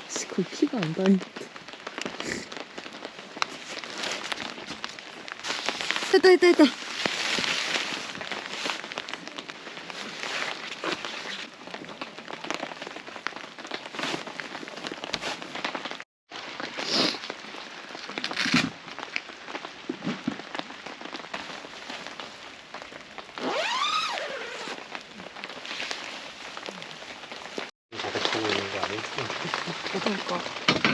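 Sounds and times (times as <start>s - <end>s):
rustling bursts: 0.0s - 11.6s
rain pattering on a tarp: 0.0s - 30.9s.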